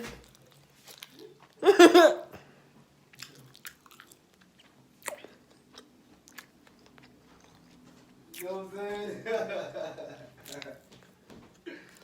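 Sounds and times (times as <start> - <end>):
person chewing food: 0.2 - 1.6, 3.1 - 8.4.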